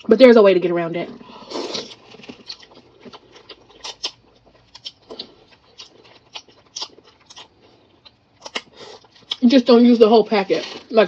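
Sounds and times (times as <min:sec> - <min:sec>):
chewing clicks and smacks: 0:02.2 - 0:09.4.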